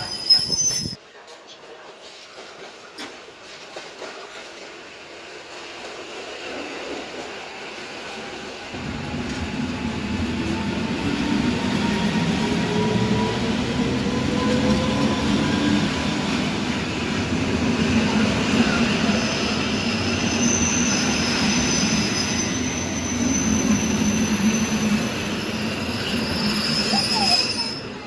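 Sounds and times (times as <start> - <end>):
high metallic wheel squeal: 0.0 - 1.0, 19.2 - 28.0
train wheels rumbling on rail: 1.8 - 28.0.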